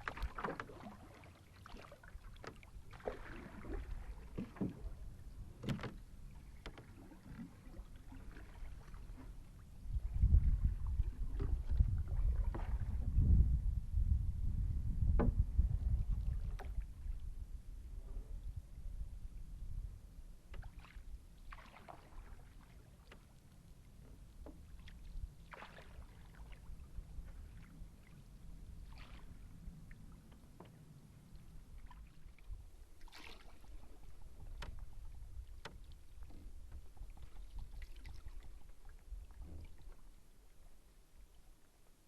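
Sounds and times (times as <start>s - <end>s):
paddle splashing water: 0.0s - 13.2s, 15.1s - 18.4s, 20.4s - 42.0s
low steady rumble: 2.6s - 21.5s.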